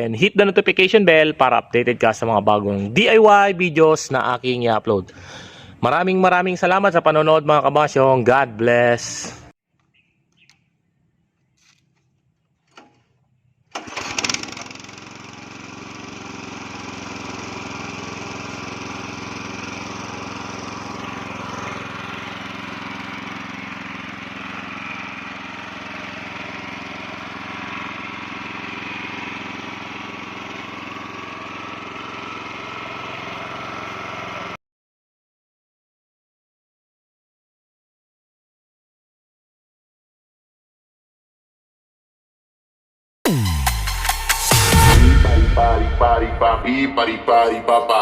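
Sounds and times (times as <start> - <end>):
small gasoline engine running: 13.7 - 34.6.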